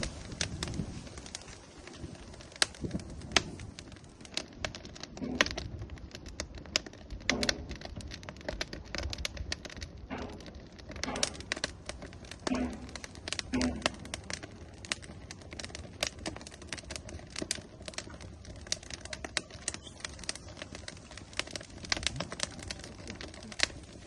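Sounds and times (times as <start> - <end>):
firewood crackling and popping: 0.0 - 24.0
low hiss of fire: 0.0 - 24.0.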